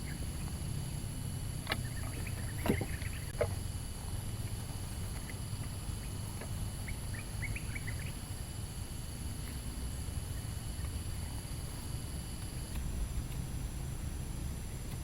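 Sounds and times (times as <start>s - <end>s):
low outdoor ambience: 0.0s - 15.0s
faint bird chirps: 1.8s - 3.4s, 6.8s - 8.5s.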